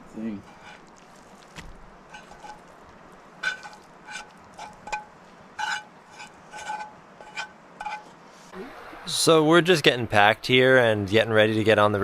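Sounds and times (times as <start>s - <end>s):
metal utensil scraping cookware: 2.1s - 2.6s, 3.4s - 8.1s.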